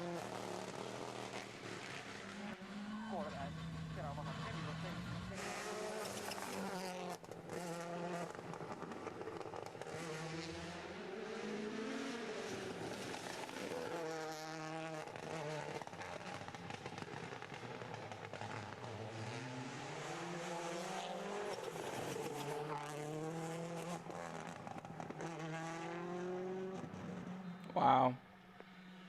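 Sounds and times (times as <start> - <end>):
car engine revving hard: 17.2 - 27.4.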